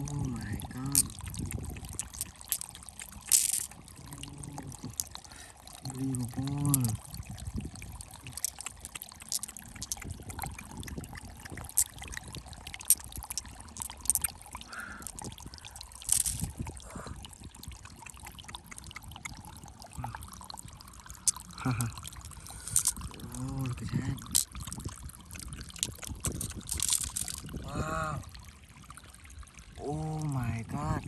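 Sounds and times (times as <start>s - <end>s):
water sloshing and trickling: 0.0s - 31.0s
stones clicking and scraping: 0.9s - 3.8s, 4.7s - 5.1s, 8.2s - 10.5s, 11.6s - 12.0s, 12.8s - 14.4s, 16.0s - 16.7s, 22.5s - 23.2s, 24.2s - 24.6s, 25.7s - 27.5s.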